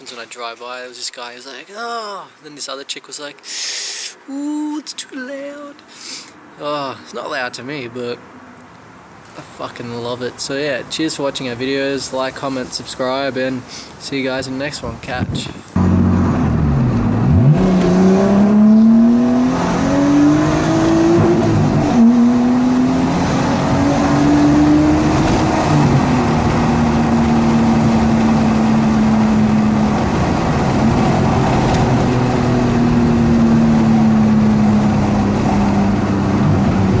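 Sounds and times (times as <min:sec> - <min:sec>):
car engine accelerating: 0:15.8 - 0:37.0.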